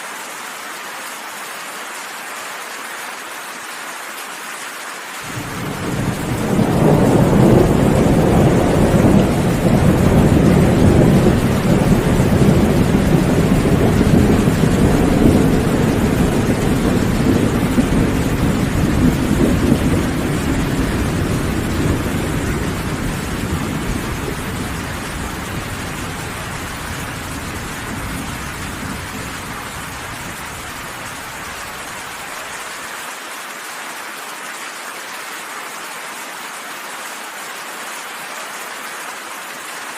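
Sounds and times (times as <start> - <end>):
steady rain: 0.0 - 39.9
low thunder rolling: 5.3 - 31.9.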